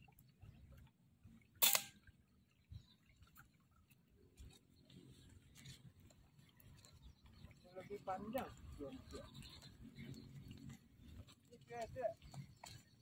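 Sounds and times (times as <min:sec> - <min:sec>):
air rifle shot: 0:01.6 - 0:01.9
small clicks: 0:01.6 - 0:02.0.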